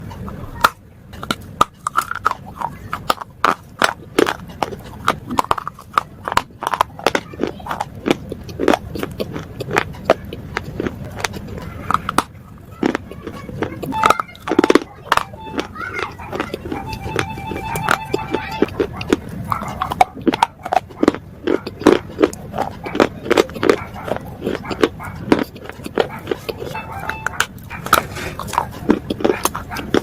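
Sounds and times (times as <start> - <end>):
slate bars crunching: 0.6 - 16.6, 27.4 - 30.0.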